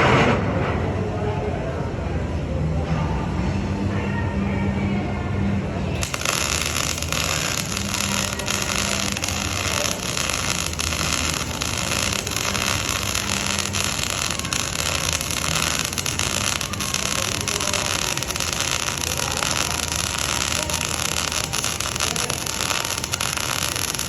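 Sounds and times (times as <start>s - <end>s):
welding arc crackling and hissing: 6.0s - 24.0s.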